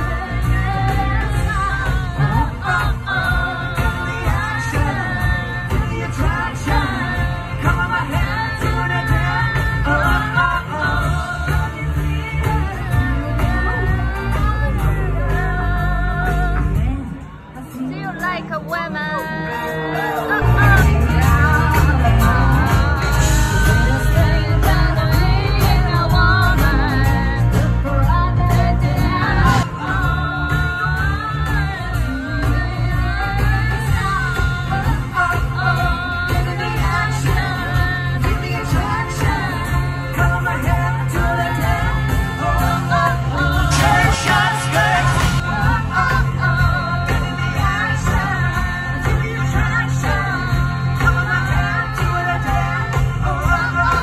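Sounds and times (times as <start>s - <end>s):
drums: 0.0s - 54.0s
live pop-rock band: 0.0s - 54.0s
person singing: 0.0s - 54.0s
heavy bass: 20.4s - 54.0s.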